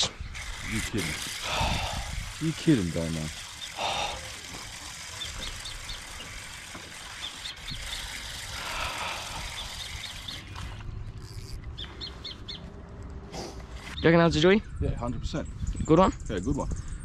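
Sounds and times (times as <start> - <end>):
small birds chirping: 0.0 - 17.0
steady low rumble: 8.6 - 17.0.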